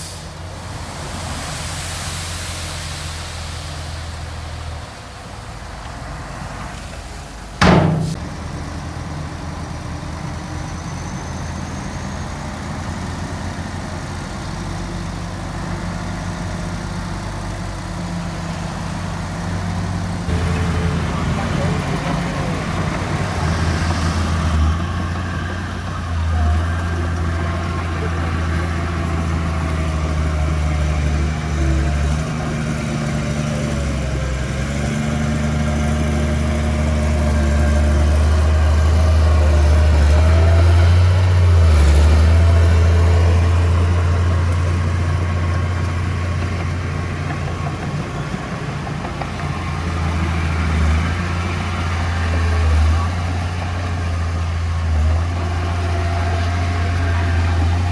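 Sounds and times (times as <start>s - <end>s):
diesel engine droning: 0.0s - 57.9s.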